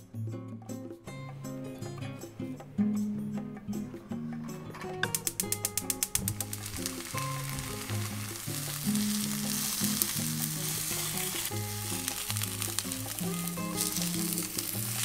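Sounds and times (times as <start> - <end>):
light background music: 0.0 - 15.0
dumplings sizzling in a pan: 5.1 - 15.0.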